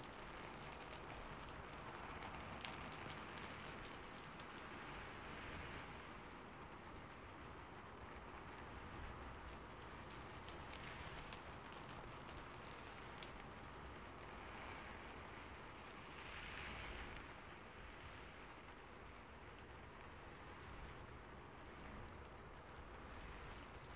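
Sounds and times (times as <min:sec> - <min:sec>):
faint steady rain: 0:00.0 - 0:23.9.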